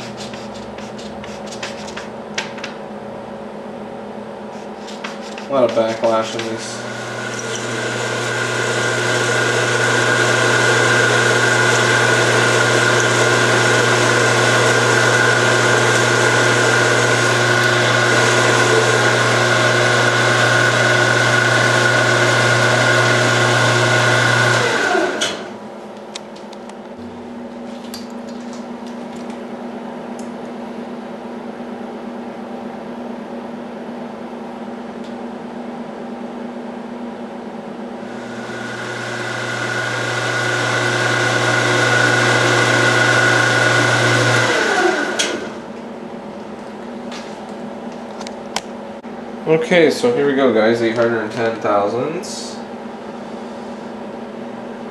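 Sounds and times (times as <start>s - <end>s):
lathe running with gear whine: 5.5s - 25.6s, 38.0s - 45.6s.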